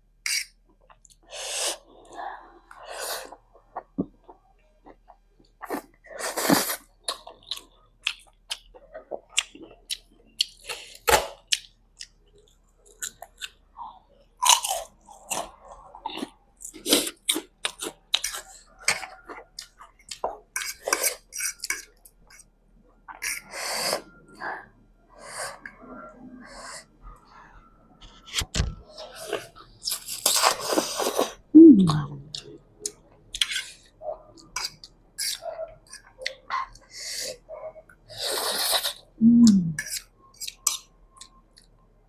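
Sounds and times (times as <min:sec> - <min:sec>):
chewing noodles: 0:14.4 - 0:22.5.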